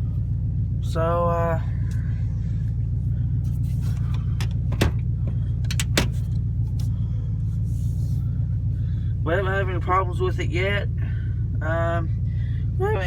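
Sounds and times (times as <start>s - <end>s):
engine idling low rumble: 0.0s - 13.0s.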